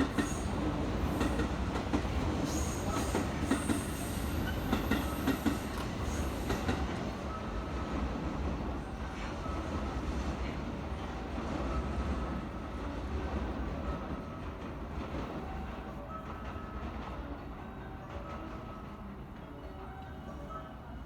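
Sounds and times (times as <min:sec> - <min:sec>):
train rumbling: 0:00.0 - 0:20.6.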